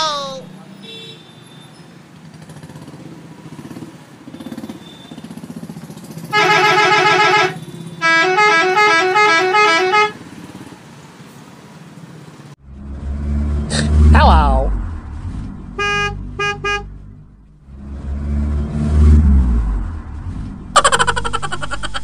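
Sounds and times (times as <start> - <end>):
buzzy toy horn blast: 6.4 - 10.2, 15.8 - 17.0
two-tone toy horn: 6.4 - 10.2, 15.8 - 16.9.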